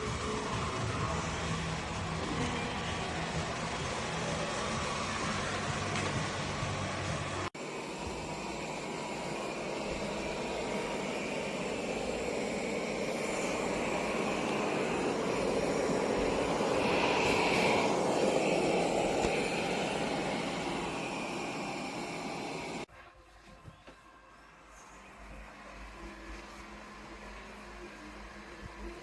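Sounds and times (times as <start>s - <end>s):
robot vacuum cleaner whooshing: 0.0s - 22.9s.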